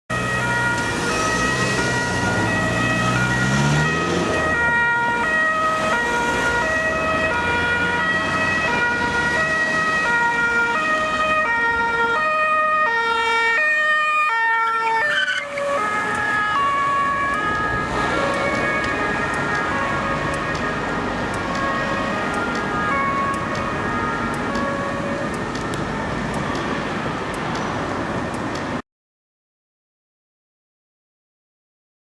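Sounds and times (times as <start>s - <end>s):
two-tone police siren: 0.1s - 27.5s
car engine revving: 0.4s - 4.8s.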